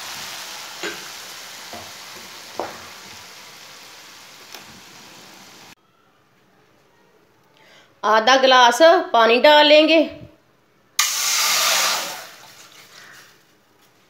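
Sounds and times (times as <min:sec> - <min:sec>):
sauce sizzling in a frying pan: 0:00.0 - 0:05.8, 0:11.0 - 0:13.2.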